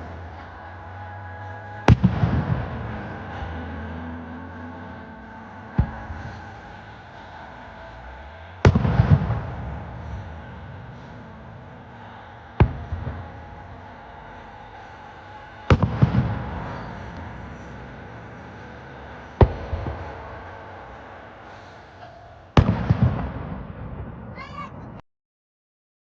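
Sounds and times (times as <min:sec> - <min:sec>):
fireworks bursting: 0:01.7 - 0:24.5
fireworks crackle: 0:15.6 - 0:23.6.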